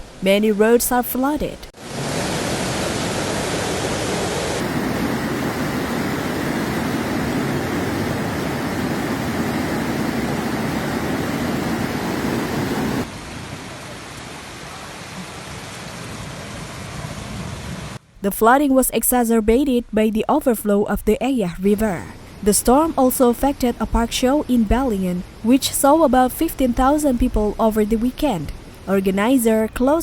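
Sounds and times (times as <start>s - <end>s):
heavy rain hissing: 1.8s - 18.0s.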